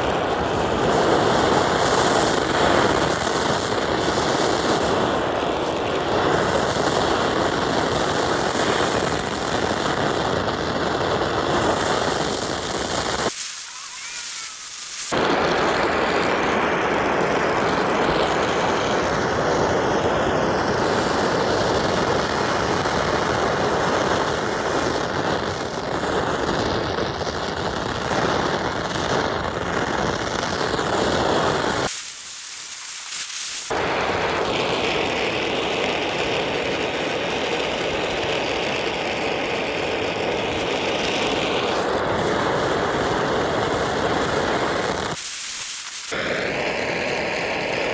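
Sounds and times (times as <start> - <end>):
gas burner flame roaring hiss: 0.0 - 47.9.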